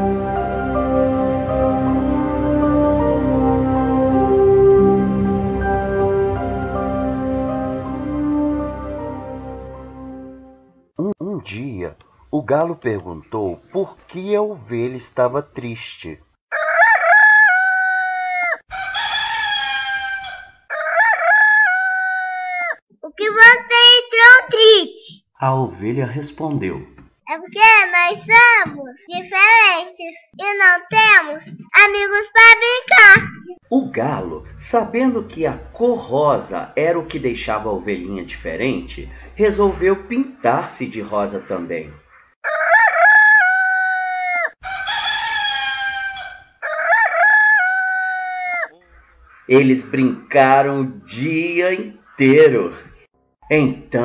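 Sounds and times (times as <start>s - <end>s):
rooster crowing: 16.5s - 22.8s, 42.4s - 49.0s.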